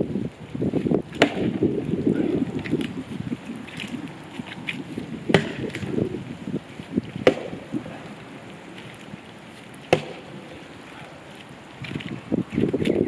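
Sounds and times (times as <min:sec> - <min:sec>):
axe chopping wood: 0:01.2 - 0:01.7, 0:05.3 - 0:05.9, 0:07.2 - 0:07.6, 0:09.9 - 0:10.2.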